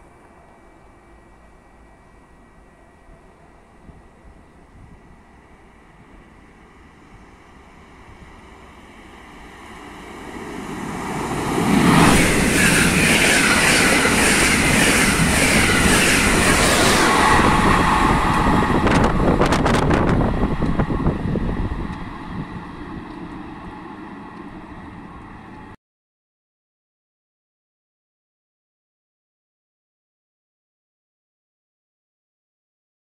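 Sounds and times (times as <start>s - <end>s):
passenger train rushing past: 0.0s - 25.8s
wheels clattering on rails: 11.6s - 21.0s.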